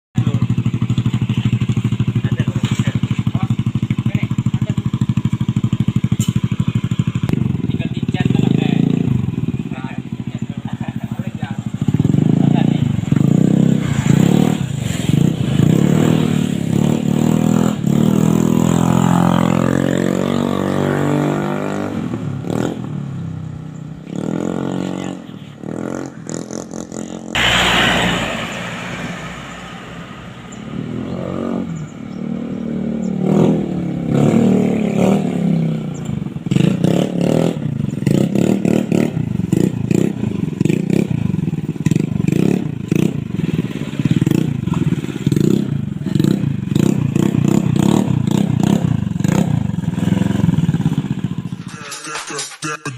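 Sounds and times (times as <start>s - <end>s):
scooter engine revving: 0.2s - 52.0s
loud exhaust burst: 27.3s - 31.7s.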